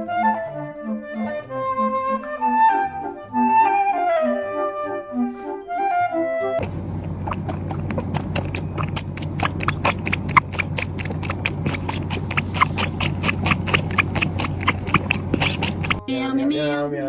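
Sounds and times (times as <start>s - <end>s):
rapid tapping clicks: 6.6s - 16.0s
steady low hum: 6.6s - 16.0s.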